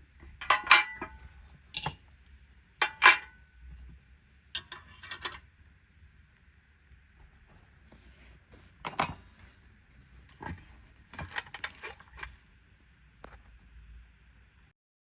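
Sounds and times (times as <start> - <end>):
low steady hum: 0.0 - 14.7
metal parts clinking and knocking: 0.3 - 2.1, 2.8 - 3.4, 4.6 - 5.4.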